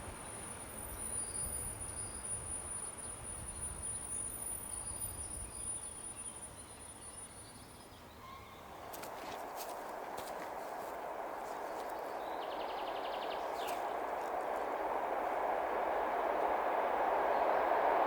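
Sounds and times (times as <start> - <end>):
bird chirps: 11.6 - 14.6.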